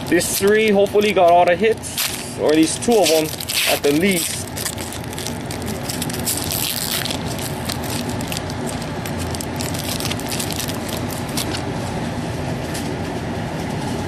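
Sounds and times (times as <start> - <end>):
wrapper tearing and crinkling: 0.0 - 1.1, 1.8 - 11.7
low background rumble: 0.0 - 14.0.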